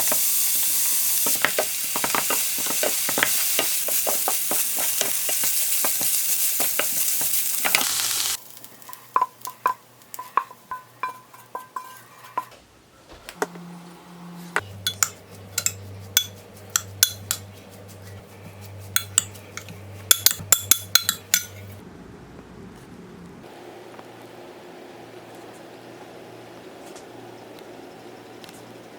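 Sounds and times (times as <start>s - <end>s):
food sizzling in a frying pan: 0.0s - 12.0s
utensil clinking on a pan: 1.2s - 7.8s, 8.9s - 12.6s, 14.8s - 17.5s, 19.0s - 21.7s
low steady hum: 12.3s - 23.5s.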